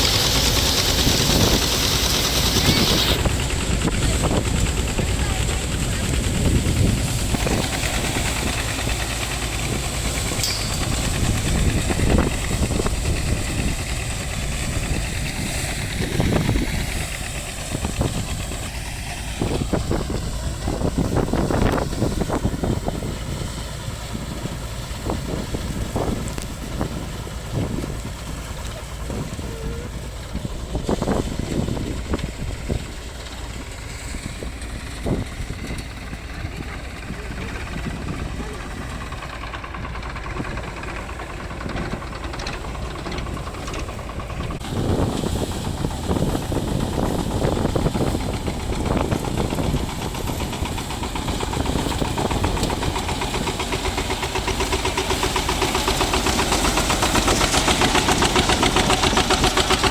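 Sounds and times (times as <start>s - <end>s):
diesel engine running steadily: 0.0s - 59.9s.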